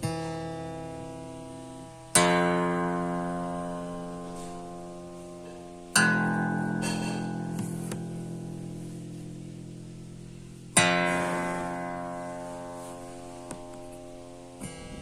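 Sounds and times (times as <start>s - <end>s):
acoustic guitar chords ringing: 0.0s - 15.0s.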